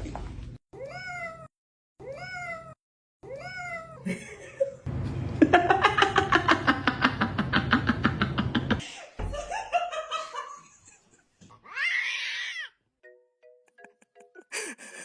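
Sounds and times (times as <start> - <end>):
cat meowing: 0.8 - 4.0, 11.6 - 12.8.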